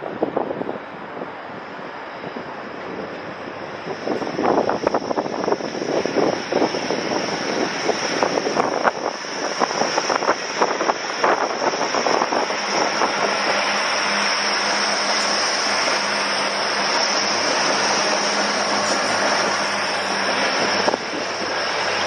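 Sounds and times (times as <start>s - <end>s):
train wheels clattering on rails: 11.3s - 21.5s.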